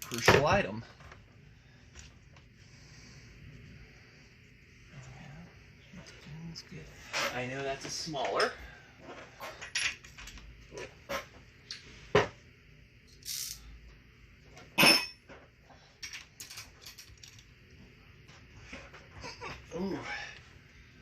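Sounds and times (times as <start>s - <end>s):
metal tools clicking and clinking: 16.0s - 17.5s.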